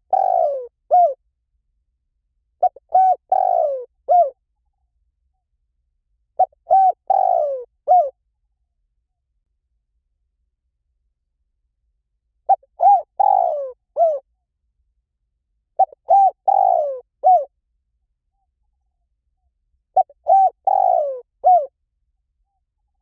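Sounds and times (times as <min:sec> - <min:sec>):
dove cooing: 0:00.0 - 0:01.2, 0:02.6 - 0:04.4, 0:06.4 - 0:08.2, 0:12.5 - 0:14.2, 0:15.8 - 0:17.5, 0:20.0 - 0:21.7.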